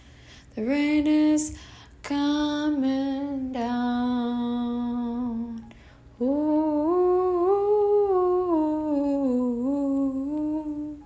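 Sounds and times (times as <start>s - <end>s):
woman humming a melody: 4.1s - 11.0s
woman singing a long note: 6.2s - 11.0s.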